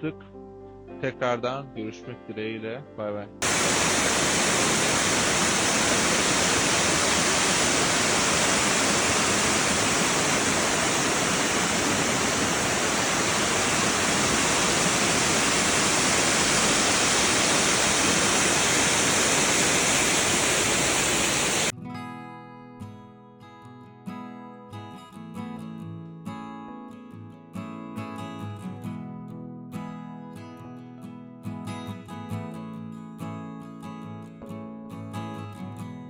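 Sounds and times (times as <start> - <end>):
waterfall rushing: 3.4 - 21.7
strummed acoustic guitar music: 21.8 - 36.0.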